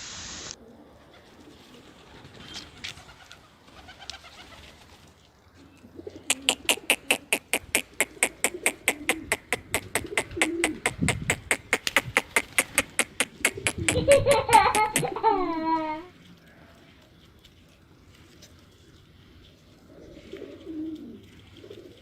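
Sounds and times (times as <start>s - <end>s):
pigeons cooing: 5.8s - 16.0s, 19.8s - 22.0s
fast sharp clicks: 6.3s - 15.2s.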